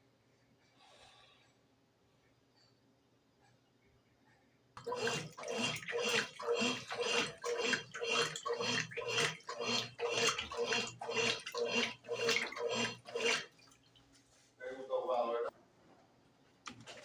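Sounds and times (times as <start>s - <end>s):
washing machine swishing: 4.8s - 14.6s.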